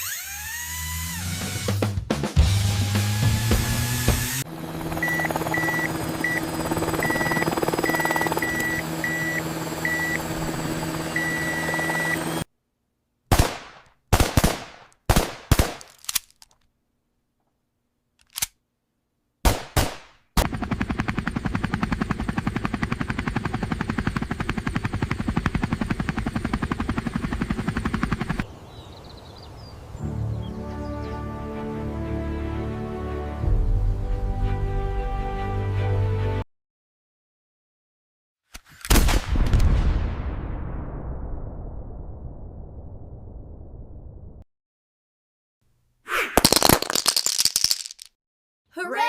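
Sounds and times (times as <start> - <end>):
short repeated beeps: 7.0 - 10.2
rapid machine-gun fire: 13.3 - 15.8
single gunshots: 13.3 - 15.9, 19.4 - 20.2.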